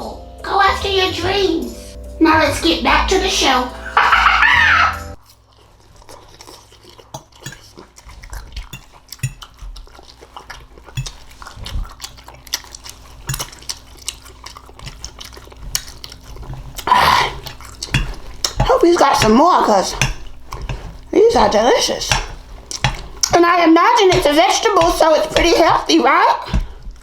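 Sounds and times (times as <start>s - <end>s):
cutlery clinking against a dish: 7.2s - 7.7s, 8.6s - 9.6s, 10.9s - 11.4s, 13.2s - 13.8s, 17.3s - 23.4s, 24.0s - 25.8s.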